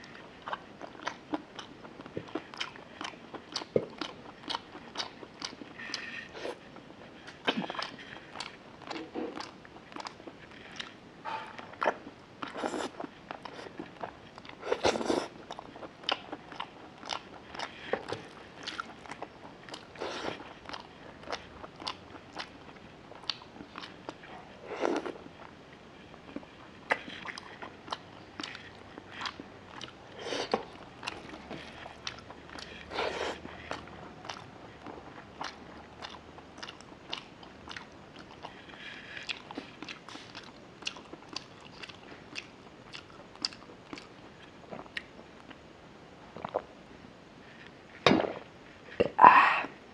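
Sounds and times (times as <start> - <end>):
wet chewing and lip smacks: 35.4 - 44.1.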